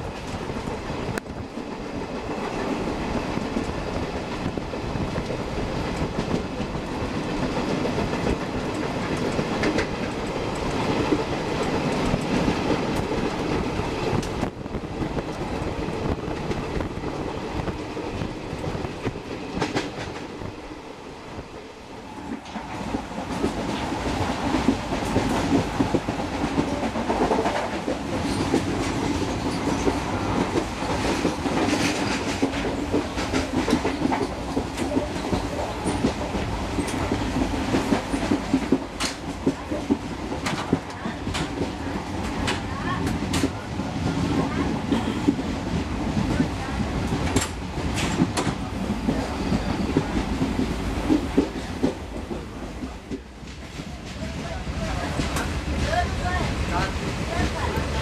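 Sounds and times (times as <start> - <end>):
train rumble: 0.0 - 58.0
wheels clacking over rail joints: 22.3 - 58.0.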